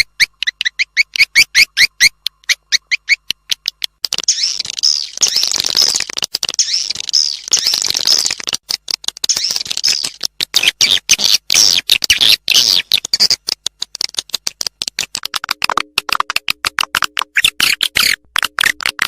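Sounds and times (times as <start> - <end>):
swiftlet chirps and twittering: 0.0 - 8.5, 9.2 - 13.4, 17.3 - 18.8.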